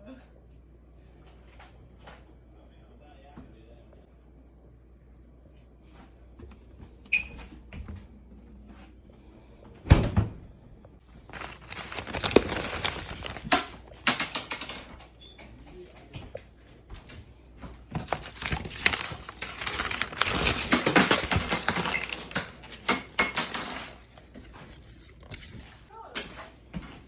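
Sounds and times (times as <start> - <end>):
crinkling and rustling: 11.0 - 27.0.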